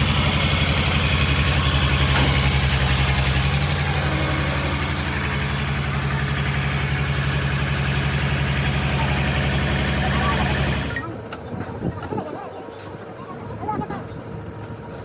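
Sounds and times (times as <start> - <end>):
truck engine idling: 0.0 - 11.3.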